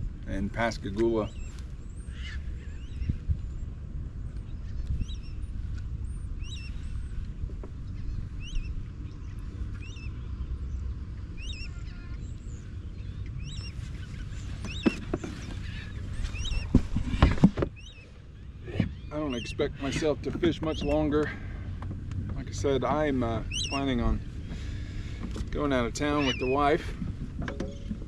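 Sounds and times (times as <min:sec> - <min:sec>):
low rumble: 0:01.3 - 0:28.0
bird squawking: 0:02.0 - 0:03.1, 0:11.4 - 0:12.3, 0:13.4 - 0:21.5, 0:23.3 - 0:24.9, 0:25.8 - 0:26.9.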